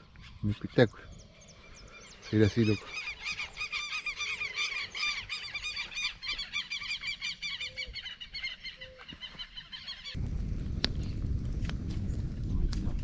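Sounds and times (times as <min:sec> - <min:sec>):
birds calling harshly: 0:00.0 - 0:10.2.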